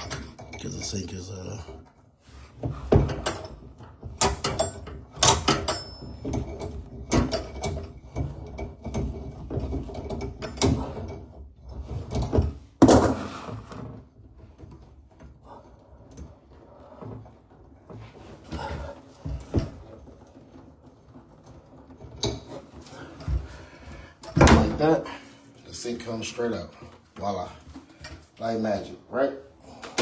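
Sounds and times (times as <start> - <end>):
tools knocking and scraping on sink: 2.6 - 25.0.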